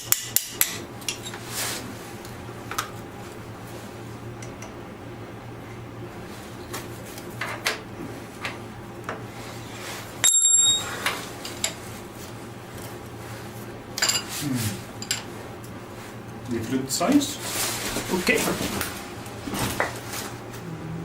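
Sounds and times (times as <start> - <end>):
steel tools clinking on metal: 10.2 - 10.9
bright metallic ring: 10.2 - 11.0.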